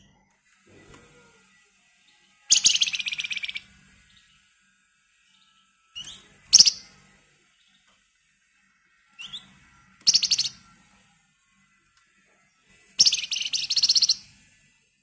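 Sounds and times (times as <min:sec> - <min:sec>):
songbird rattling trill: 0:02.5 - 0:03.6, 0:06.0 - 0:06.9, 0:10.0 - 0:10.6, 0:13.0 - 0:14.2
bird call: 0:13.0 - 0:14.2.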